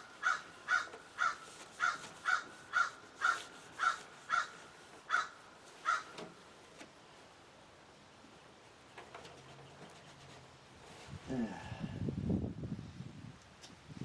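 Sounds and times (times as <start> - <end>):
crow cawing: 0.2 - 6.2.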